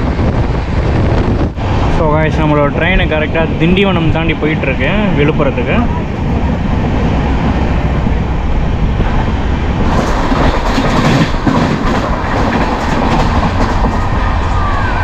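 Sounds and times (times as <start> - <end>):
train wheels rumbling on rails: 0.0 - 15.0
train wheels clacking: 9.8 - 14.6.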